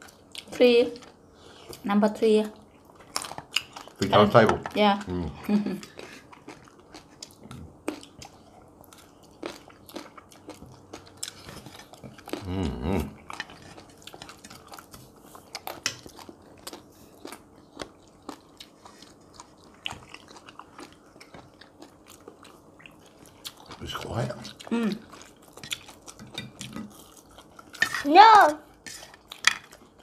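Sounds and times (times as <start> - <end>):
people chewing and crunching food: 0.0 - 30.0
person humming: 12.4 - 13.2.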